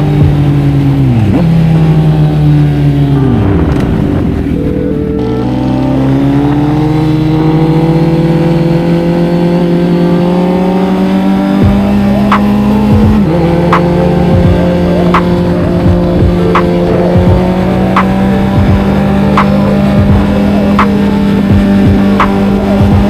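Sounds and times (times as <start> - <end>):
motorcycle engine accelerating: 0.0 - 23.0
sharp ticks: 11.6 - 23.0.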